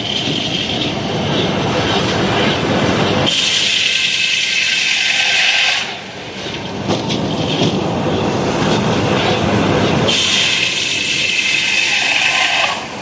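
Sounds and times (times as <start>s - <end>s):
saw blade cutting log: 10.1s - 12.9s.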